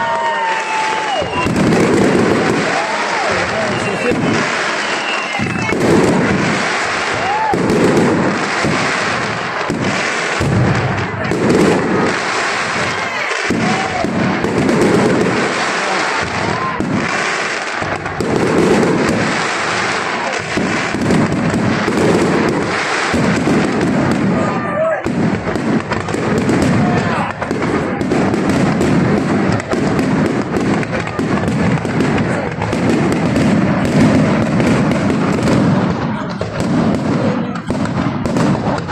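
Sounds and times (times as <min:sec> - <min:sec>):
faint firework whistle: 0:00.0 - 0:06.1
fireworks bangs and crackling: 0:00.0 - 0:38.9.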